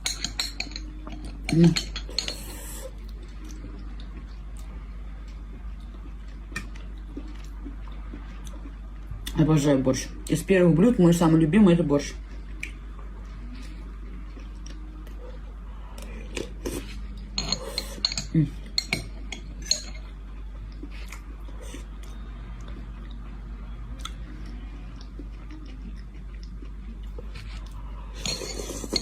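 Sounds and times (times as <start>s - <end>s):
spoon clinking against a dish: 0.0s - 2.5s, 17.3s - 20.1s, 28.2s - 29.0s.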